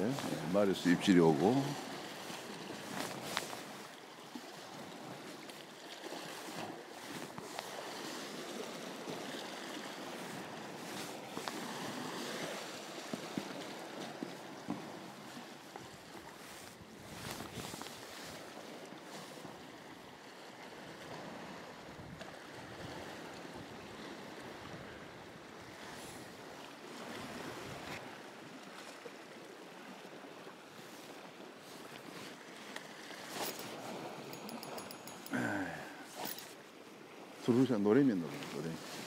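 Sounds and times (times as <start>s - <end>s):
wind on microphone: 16.6s - 18.4s, 21.9s - 23.7s.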